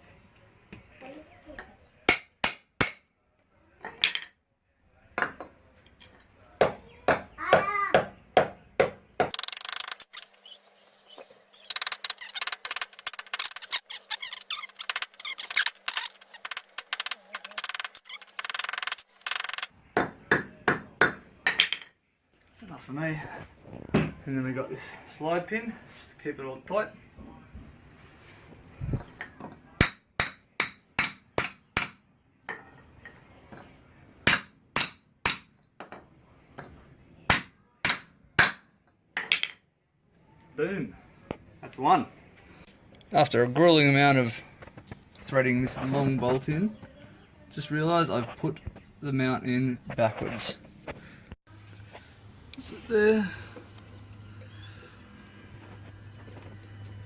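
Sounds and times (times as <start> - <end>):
hammer striking metal: 2.1 - 3.3, 29.8 - 32.8, 34.2 - 36.1, 37.3 - 39.5
socket ratchet clicking: 14.7 - 19.7
metal ringing: 29.2 - 33.3, 34.3 - 36.4, 37.3 - 39.5.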